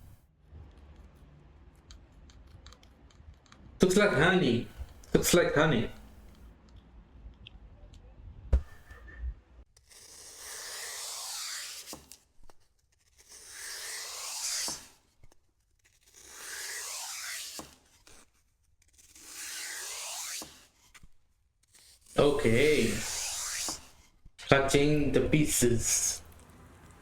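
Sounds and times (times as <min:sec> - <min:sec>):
long scraping strokes: 0:13.2 - 0:15.0, 0:22.0 - 0:24.1.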